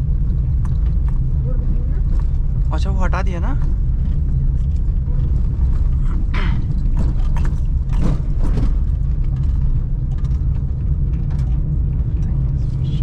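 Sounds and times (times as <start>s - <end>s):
car engine and road noise: 0.0s - 13.0s
clicks and rattles: 3.5s - 12.5s.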